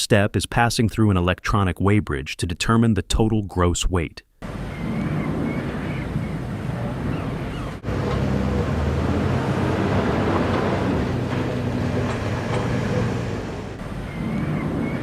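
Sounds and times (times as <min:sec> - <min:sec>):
wind noise: 0:04.5 - 0:15.0
diesel truck engine running: 0:05.9 - 0:15.0.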